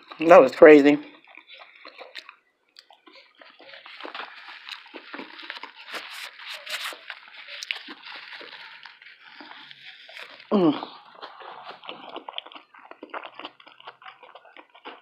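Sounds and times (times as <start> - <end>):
chewing with soft crunching: 0.0 - 15.0
wet mouth clicks: 1.2 - 8.1.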